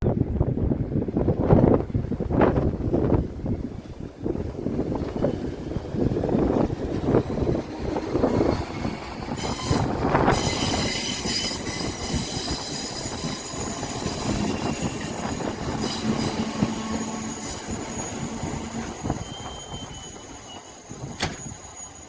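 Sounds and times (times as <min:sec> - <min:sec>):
wind buffeting microphone: 0:00.0 - 0:21.7
passenger train rumbling: 0:00.0 - 0:22.0
train wheels squealing: 0:07.0 - 0:22.0.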